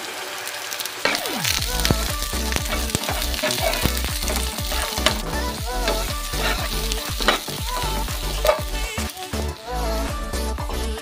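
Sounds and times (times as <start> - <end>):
onions sizzling in hot oil: 0.0 - 10.6
music with sliding bass notes: 1.2 - 11.0
spatula scraping a wok: 2.4 - 9.4.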